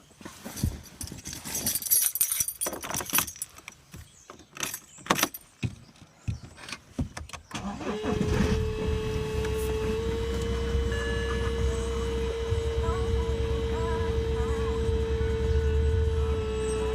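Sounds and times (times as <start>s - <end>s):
keys clicking and rattling: 0.5s - 5.6s
diesel engine cranking and idling: 7.4s - 16.9s
steady pump whine: 7.6s - 16.9s.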